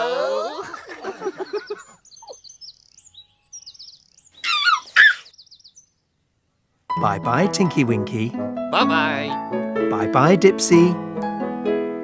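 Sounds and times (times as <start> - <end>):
small birds chirping and trilling: 0.5 - 6.4
loud sweeping bird call: 1.4 - 5.9.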